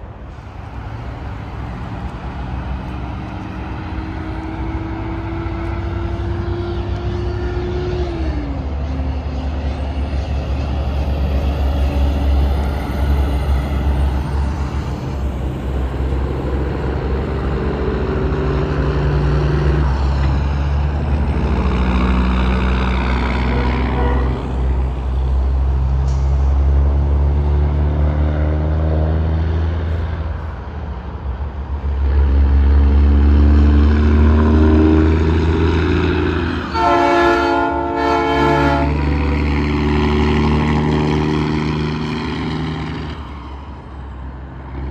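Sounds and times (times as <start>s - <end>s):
heavy trucks passing: 0.0s - 44.9s
truck air horn: 23.4s - 24.8s, 36.5s - 39.5s.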